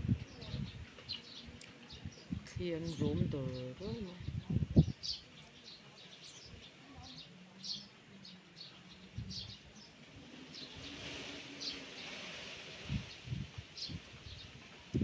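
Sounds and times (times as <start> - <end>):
small birds chirping: 0.0 - 15.0
wind hiss: 8.6 - 15.0.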